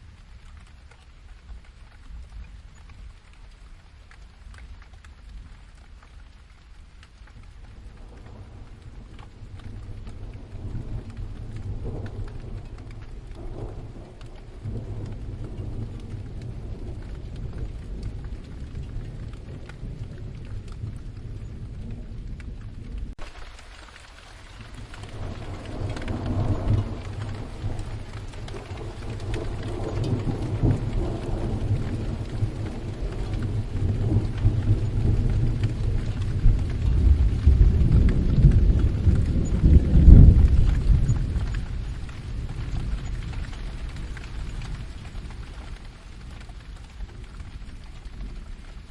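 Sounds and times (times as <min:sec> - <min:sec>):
low rumbles of thunder: 0:00.0 - 0:48.9
steady rain: 0:00.0 - 0:48.9.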